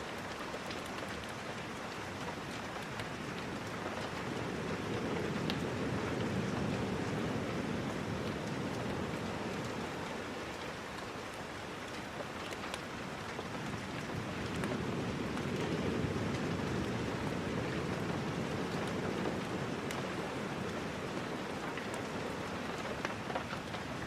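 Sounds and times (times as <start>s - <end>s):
steady rain: 0.0s - 24.0s.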